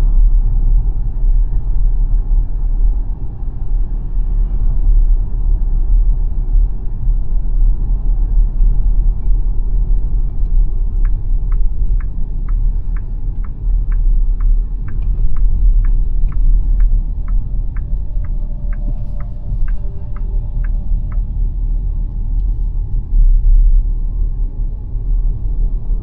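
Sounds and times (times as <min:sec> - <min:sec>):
road and tyre rumble: 0:00.0 - 0:26.0
turn signal ticking: 0:09.8 - 0:22.5.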